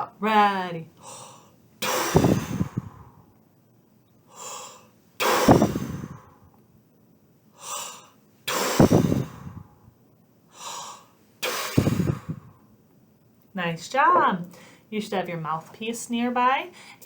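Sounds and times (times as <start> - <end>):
person breathing in: 1.0 - 3.3, 4.3 - 6.5, 7.6 - 9.8, 10.5 - 12.6
person blowing air out hard: 1.8 - 3.3, 4.3 - 6.5, 7.6 - 9.8, 10.6 - 12.6.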